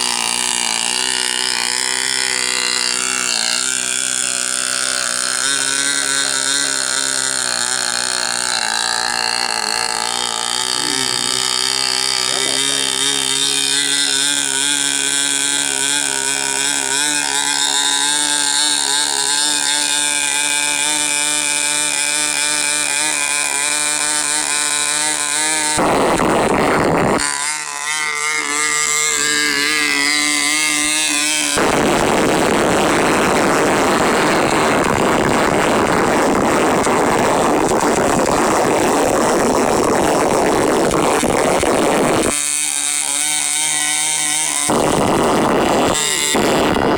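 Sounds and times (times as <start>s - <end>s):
model airplane engine buzzing: 0.0s - 46.9s
harsh rushing noise: 25.8s - 27.4s, 29.0s - 42.4s, 43.7s - 46.9s.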